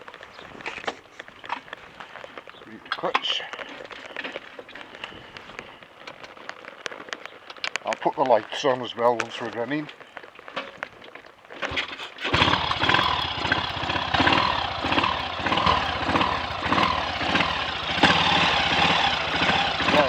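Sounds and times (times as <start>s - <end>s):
motorcycle engine starting: 11.6s - 20.0s.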